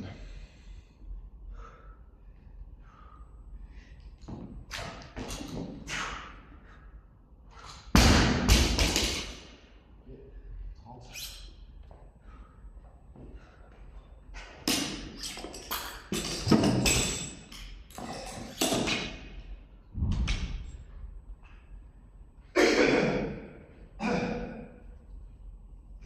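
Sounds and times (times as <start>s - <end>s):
gym equipment thuds and knocks: 16.1s - 17.4s.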